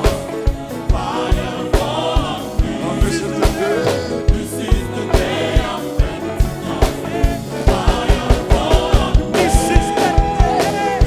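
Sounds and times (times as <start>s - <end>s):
gospel band playing: 0.0s - 11.0s
people singing: 0.0s - 11.0s
steady drum beat: 2.6s - 5.4s.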